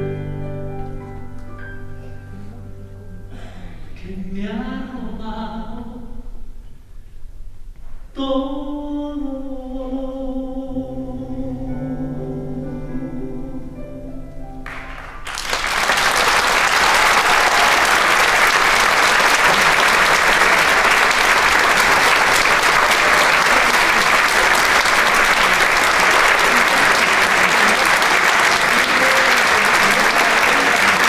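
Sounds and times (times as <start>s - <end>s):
audience applause: 14.7s - 31.0s.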